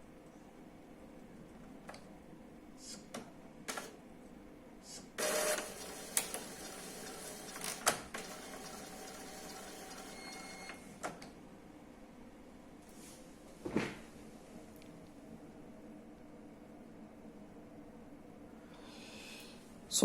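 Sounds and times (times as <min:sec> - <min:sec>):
printer mechanism running: 0:03.7 - 0:04.0, 0:05.2 - 0:10.8
printer clicks: 0:05.2 - 0:11.3.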